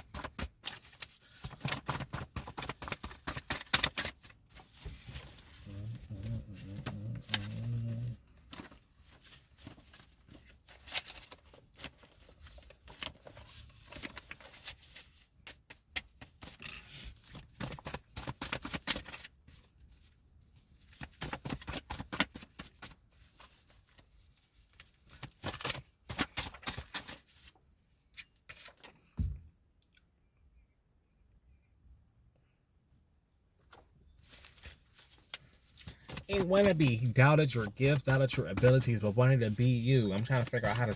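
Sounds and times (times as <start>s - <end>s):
cards being shuffled: 33.7s - 40.9s.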